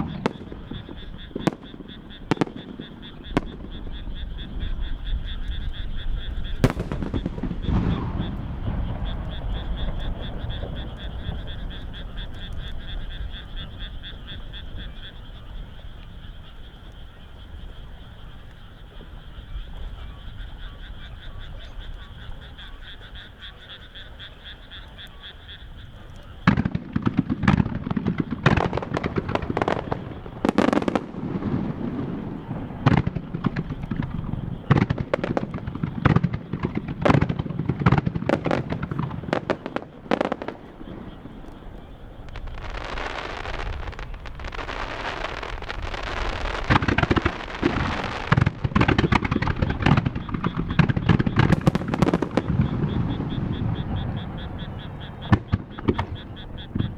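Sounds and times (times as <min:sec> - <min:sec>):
fireworks booming: 0:00.0 - 0:56.9
fireworks crackling hiss: 0:00.0 - 0:56.9
frogs croaking: 0:00.0 - 0:56.9.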